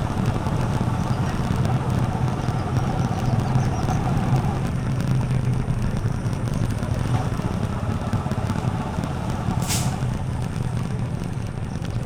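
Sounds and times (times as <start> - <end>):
motorcycle engine running: 0.0 - 12.0
wind and road noise: 0.0 - 12.0
short sharp hiss: 9.6 - 10.1.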